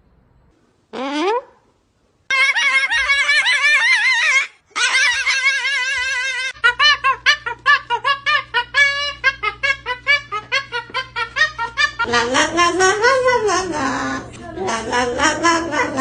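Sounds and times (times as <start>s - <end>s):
parrot calling: 2.3s - 16.0s
steady low hum: 5.4s - 16.0s.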